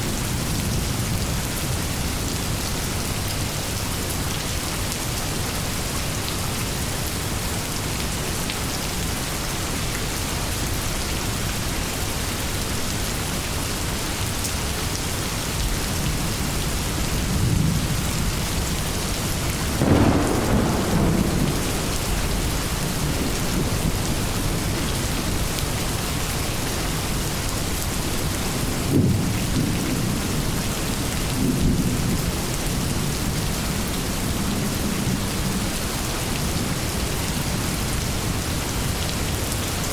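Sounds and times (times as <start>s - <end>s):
steady rain pouring: 0.0s - 39.9s
thunder rumbling: 17.2s - 26.0s.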